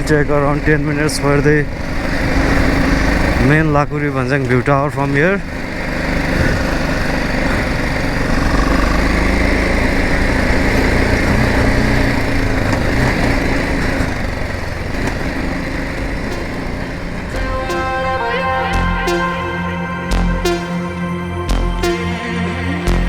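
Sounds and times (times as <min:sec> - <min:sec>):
wind and road noise: 0:00.0 - 0:17.3
motorcycle engine running: 0:01.6 - 0:17.4
background music: 0:16.3 - 0:23.0.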